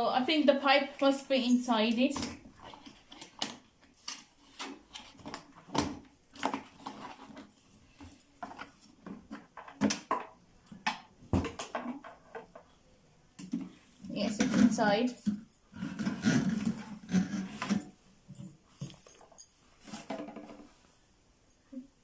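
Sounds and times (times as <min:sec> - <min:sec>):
plastic vacuum parts clicking and rattling: 0:01.8 - 0:12.7.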